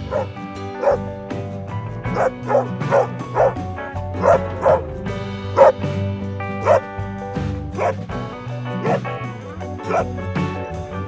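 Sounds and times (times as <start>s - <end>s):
dog barking: 0.0s - 1.1s, 2.1s - 3.6s, 4.2s - 4.9s, 5.6s - 5.8s, 6.6s - 6.9s, 7.8s - 8.0s, 8.8s - 9.1s, 9.8s - 10.1s
background music: 0.0s - 11.0s.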